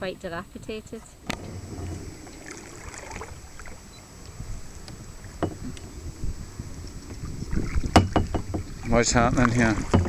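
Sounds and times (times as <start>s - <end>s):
wind on microphone: 0.0s - 10.0s
paddle strokes in water: 1.0s - 10.0s
sharp knocks: 5.4s - 5.8s, 7.7s - 8.8s, 9.7s - 10.0s.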